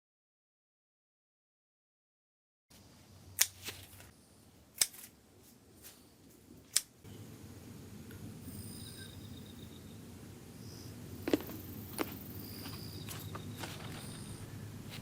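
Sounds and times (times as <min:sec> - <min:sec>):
shear blades clicking open: 0:03.4 - 0:03.7, 0:04.8 - 0:05.1, 0:06.7 - 0:06.9
garden shears snipping: 0:03.4 - 0:04.1, 0:04.7 - 0:07.0, 0:11.2 - 0:15.0
insects buzzing: 0:07.0 - 0:15.0.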